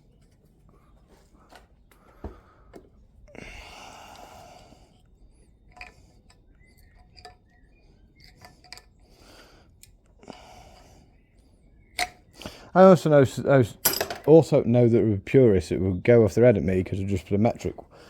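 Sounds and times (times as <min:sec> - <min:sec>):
metal tools clinking on a workbench: 0:13.8 - 0:14.3.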